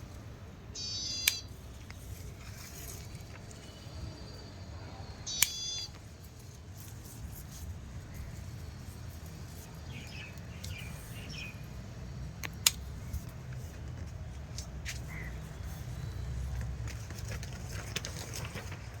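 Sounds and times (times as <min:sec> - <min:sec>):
bird chirps: 0:00.8 - 0:01.5, 0:03.6 - 0:06.0, 0:09.8 - 0:11.7
scissors snipping stems: 0:12.4 - 0:13.4.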